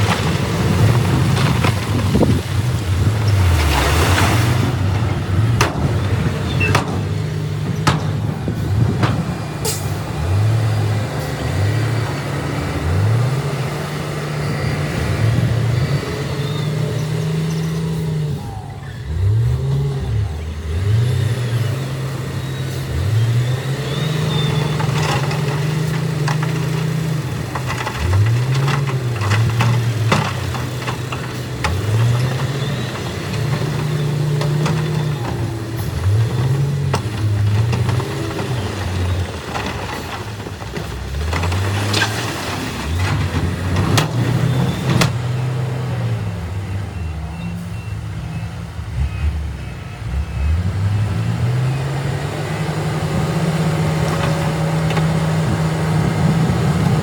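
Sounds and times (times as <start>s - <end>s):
knocks and clanks: 0.0s - 10.9s, 24.5s - 45.6s
diesel engine revving: 0.0s - 57.0s.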